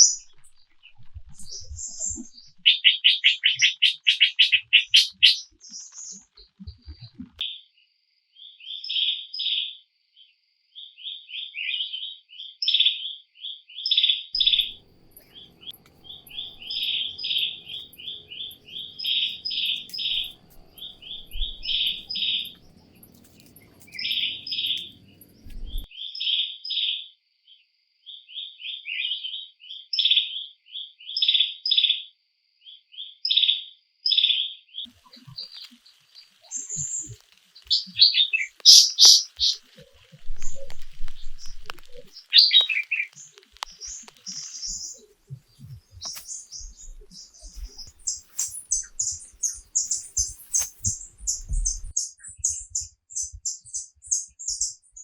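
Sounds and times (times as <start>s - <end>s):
bird chirping: 0.0s - 7.6s, 10.8s - 27.0s, 33.0s - 55.0s
thin steady high tone: 14.4s - 25.9s.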